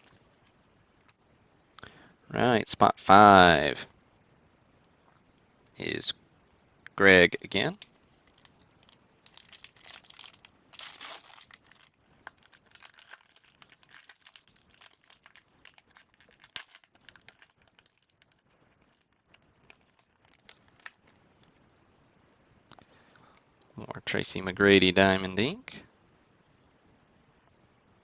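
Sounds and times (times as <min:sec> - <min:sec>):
cards rustling and clicking: 0:07.6 - 0:21.1
wrapper tearing and crinkling: 0:07.6 - 0:21.1.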